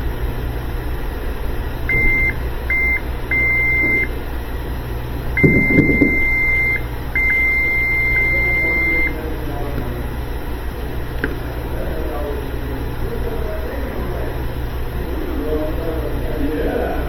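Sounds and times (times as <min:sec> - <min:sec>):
low steady hum: 0:00.0 - 0:17.0
high electronic beeps: 0:01.9 - 0:04.1, 0:05.4 - 0:09.2
soft knocks: 0:05.4 - 0:06.2.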